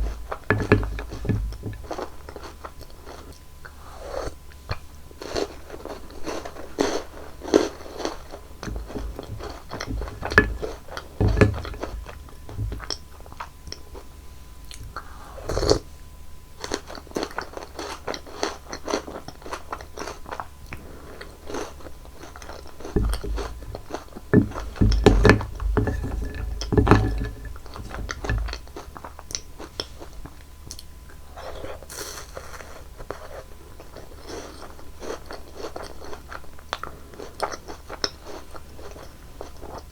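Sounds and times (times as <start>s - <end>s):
crunching and chewing candies: 0.0s - 15.9s, 16.5s - 39.9s.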